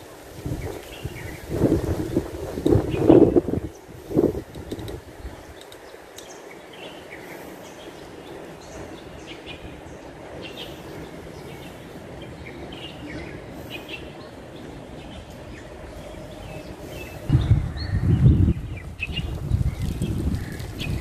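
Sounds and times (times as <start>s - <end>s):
birds chirping: 0.0s - 21.0s
steady low background noise: 0.0s - 21.0s
loud low rumble: 17.3s - 21.0s.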